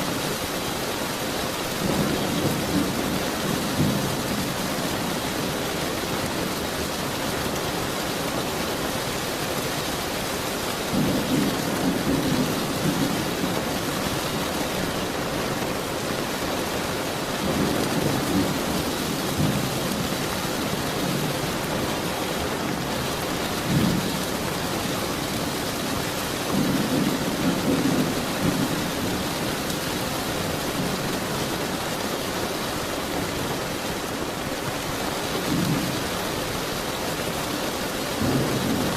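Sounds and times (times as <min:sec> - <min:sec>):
heavy rain: 0:00.0 - 0:38.9
thunder rumbling: 0:10.8 - 0:31.9, 0:38.2 - 0:38.9.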